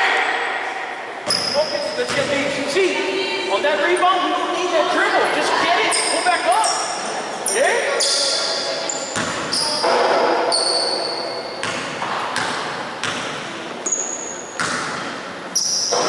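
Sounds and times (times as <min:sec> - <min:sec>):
sneaker squeaks: 0:01.2 - 0:02.4, 0:05.8 - 0:16.0
basketball bouncing on gym floor: 0:01.3 - 0:02.4, 0:09.1 - 0:10.9, 0:11.6 - 0:15.2.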